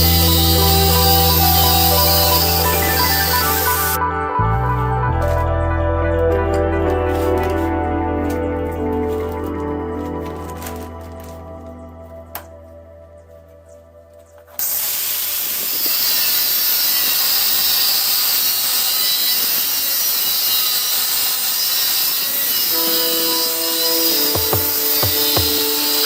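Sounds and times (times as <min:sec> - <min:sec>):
chop saw grinding steel: 0:00.0 - 0:04.0, 0:14.6 - 0:26.0
background music: 0:00.0 - 0:14.6, 0:22.7 - 0:26.0.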